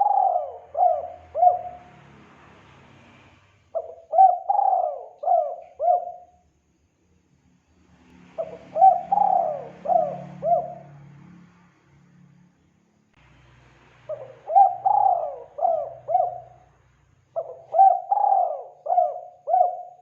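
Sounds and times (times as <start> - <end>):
dove cooing: 0.0 - 1.9, 3.8 - 6.4, 8.4 - 11.1, 14.1 - 16.8, 17.4 - 20.0.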